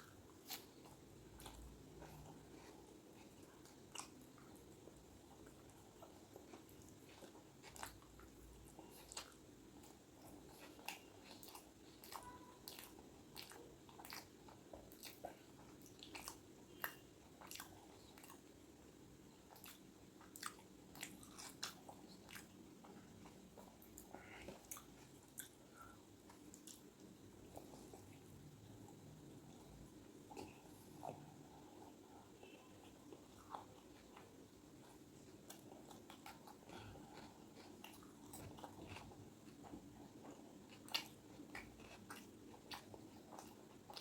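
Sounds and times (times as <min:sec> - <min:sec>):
faint background hiss: 0:00.0 - 0:44.0
person chewing food: 0:00.0 - 0:44.0.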